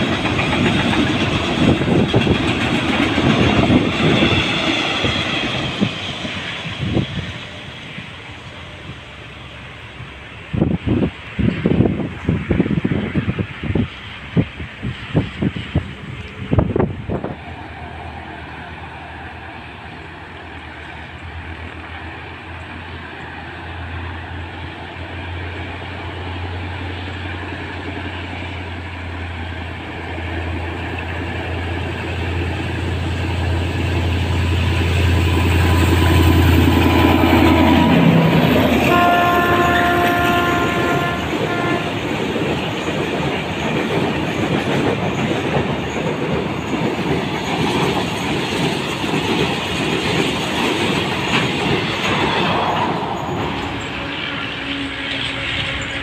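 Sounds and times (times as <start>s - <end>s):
diesel locomotive engine drone: 0.0s - 56.0s
train horn blast: 37.4s - 42.3s, 53.6s - 56.0s.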